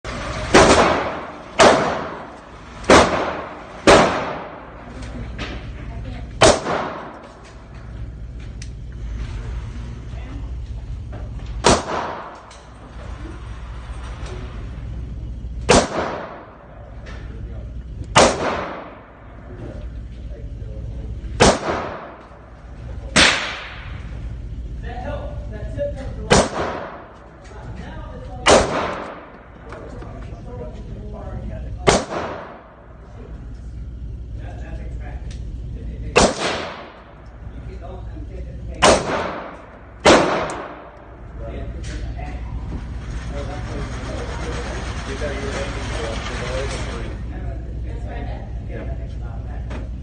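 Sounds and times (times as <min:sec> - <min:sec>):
gunshots with echo: 0:00.4 - 0:04.8, 0:06.4 - 0:07.3, 0:11.6 - 0:12.4, 0:15.7 - 0:16.7, 0:18.1 - 0:19.2, 0:21.4 - 0:22.2, 0:23.1 - 0:24.0, 0:26.3 - 0:27.2, 0:28.4 - 0:29.5, 0:31.8 - 0:32.8, 0:36.2 - 0:37.1, 0:38.8 - 0:41.0.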